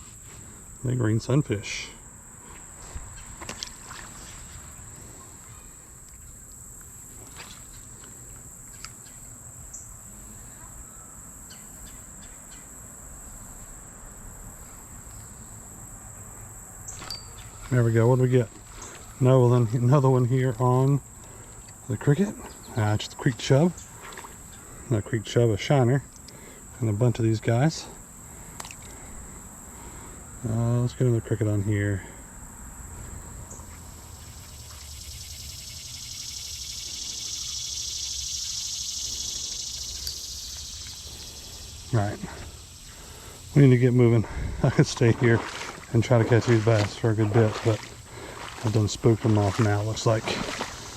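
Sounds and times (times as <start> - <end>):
high-pitched insect chorus: 0.0 - 50.9
faint ticks: 26.1 - 26.4, 28.5 - 29.0.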